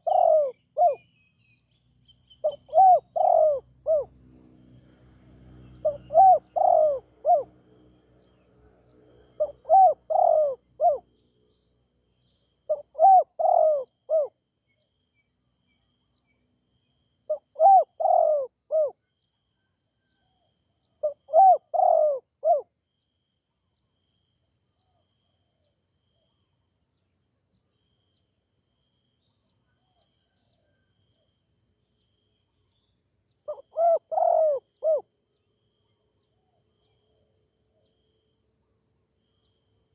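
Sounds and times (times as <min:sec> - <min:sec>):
dove cooing: 0:00.0 - 0:01.0, 0:02.4 - 0:04.1, 0:05.8 - 0:07.5, 0:09.4 - 0:11.0, 0:12.7 - 0:14.3, 0:17.3 - 0:19.0, 0:21.0 - 0:22.6, 0:33.5 - 0:35.1.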